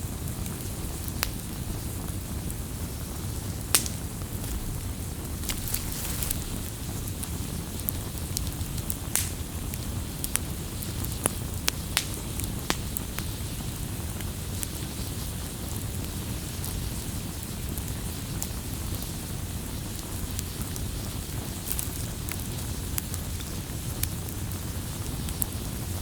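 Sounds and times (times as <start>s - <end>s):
fire crackling and popping: 0.0s - 26.0s
low rumble of flames: 0.0s - 26.0s.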